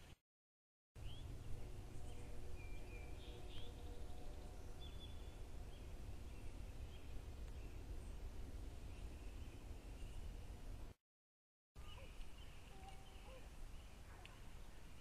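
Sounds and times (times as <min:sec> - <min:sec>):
low outdoor rumble: 0:01.0 - 0:11.0
faint bird chirps: 0:11.8 - 0:15.0.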